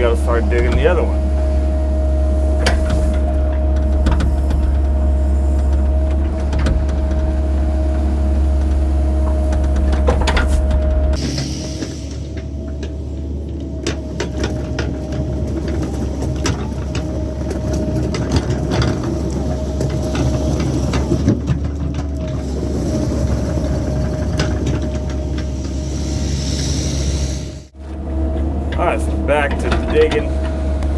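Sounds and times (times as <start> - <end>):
thin steady whine: 0.0 - 13.6
excavator diesel engine running: 0.0 - 30.9.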